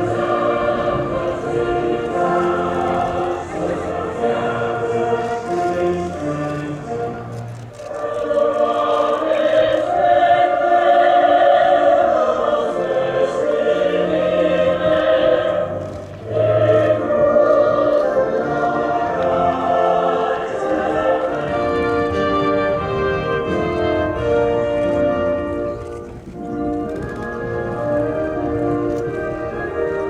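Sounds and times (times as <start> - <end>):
choir singing long notes: 0.0 - 30.0.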